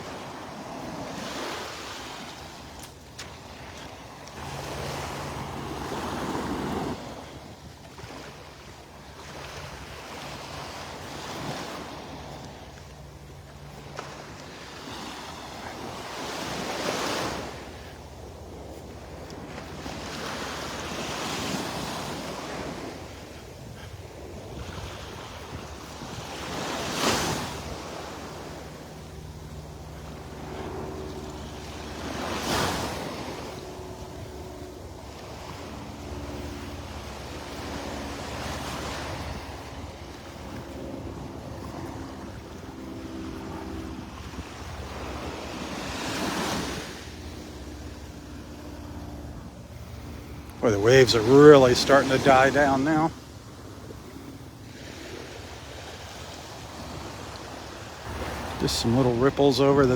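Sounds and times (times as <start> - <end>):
wind rumble on microphone: 0.0 - 52.2
small waves washing on shore: 0.0 - 59.9.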